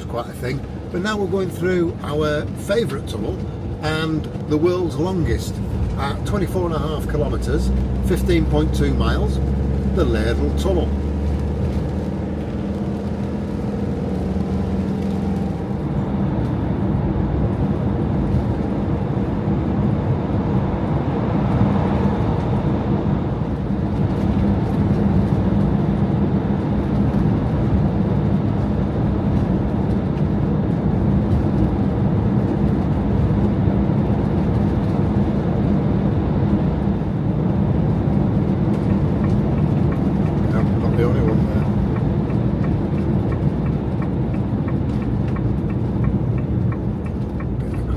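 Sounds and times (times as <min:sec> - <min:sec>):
campervan engine and tyre noise: 0:00.0 - 0:47.9.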